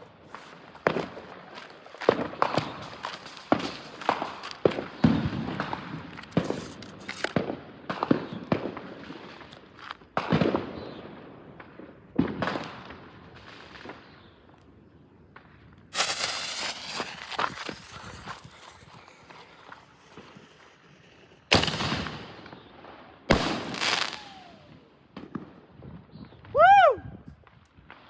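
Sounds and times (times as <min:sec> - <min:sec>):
fireworks banging: 0:00.3 - 0:07.6, 0:16.0 - 0:24.7.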